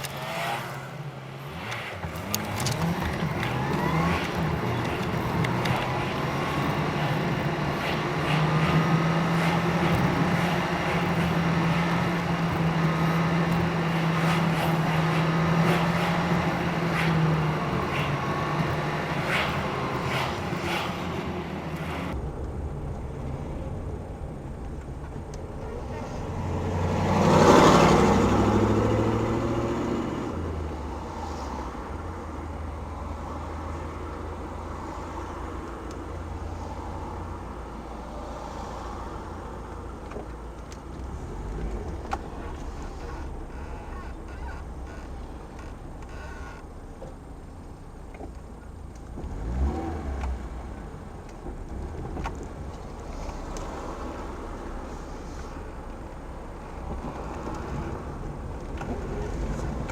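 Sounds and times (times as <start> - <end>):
clicks: 0.0 - 23.1
road vehicle passing by: 0.0 - 59.9
steady low rumble: 4.5 - 26.2.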